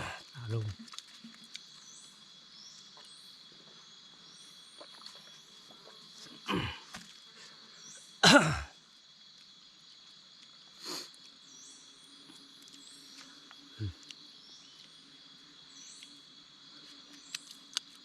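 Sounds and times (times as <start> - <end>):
person coughing: 8.2 - 8.7
high-pitched insect drone: 10.0 - 17.7
faint chirps: 10.4 - 17.8.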